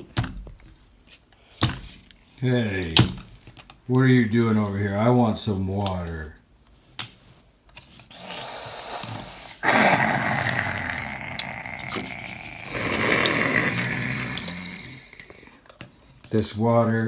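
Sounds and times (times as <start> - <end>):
child growling: 8.2 - 15.6.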